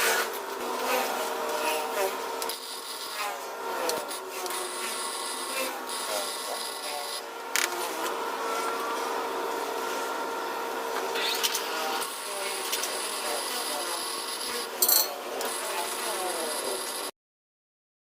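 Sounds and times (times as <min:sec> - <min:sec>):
workshop machinery humming: 0:00.0 - 0:17.2.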